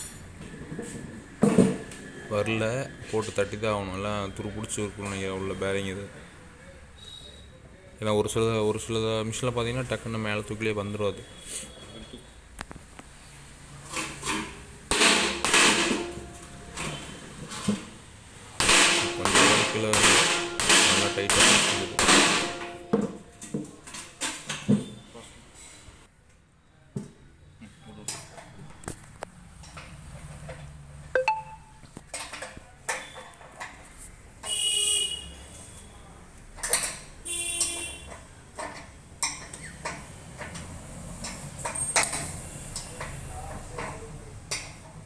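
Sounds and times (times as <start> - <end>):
knocks and clanks on metal drum: 14.1 - 17.0, 18.6 - 23.8.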